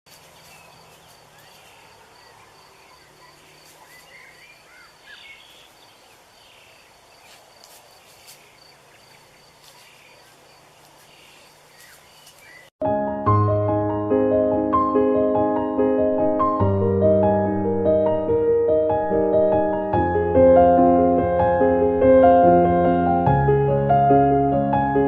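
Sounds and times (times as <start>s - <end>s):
insect chirping: 0.1s - 12.7s.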